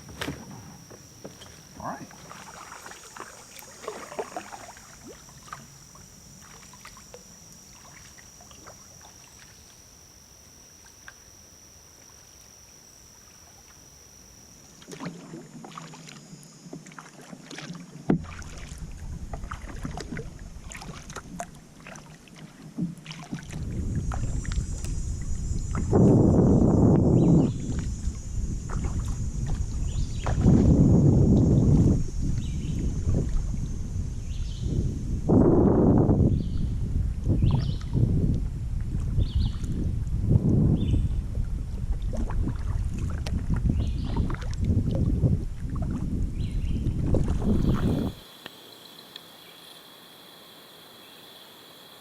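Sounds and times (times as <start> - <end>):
paddle strokes in water: 0.0 - 10.0, 14.6 - 26.2, 26.9 - 33.7, 37.2 - 52.0
high-pitched insect drone: 0.0 - 21.1, 23.4 - 38.2, 46.4 - 52.0
water splashes and drips: 2.1 - 5.7
wind rumbling on microphone: 18.1 - 21.5, 23.3 - 48.3.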